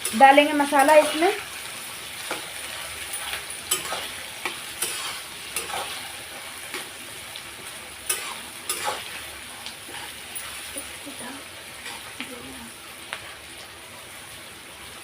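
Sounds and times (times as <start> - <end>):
onions sizzling in hot oil: 0.0 - 15.0
spoon scraping a pan: 2.2 - 7.0, 8.0 - 10.9.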